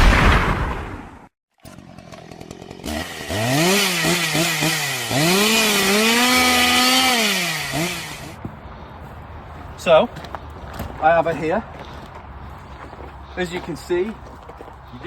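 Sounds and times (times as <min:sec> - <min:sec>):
cutting tool motor whine: 0:01.6 - 0:08.4
harsh grinding noise: 0:01.6 - 0:08.4.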